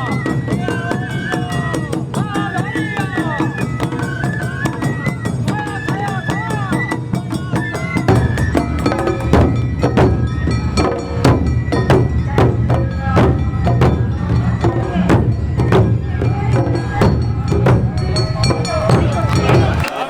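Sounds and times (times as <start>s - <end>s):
held melody line: 3.2s - 19.9s
wood-block strikes: 7.0s - 20.0s
drum strikes: 8.1s - 20.0s.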